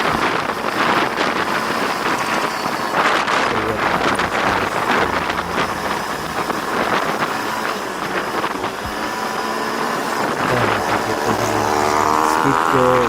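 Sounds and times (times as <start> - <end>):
wind rushing over microphone: 0.0 - 12.7
motorcycle engine running: 3.6 - 9.3, 10.0 - 13.0.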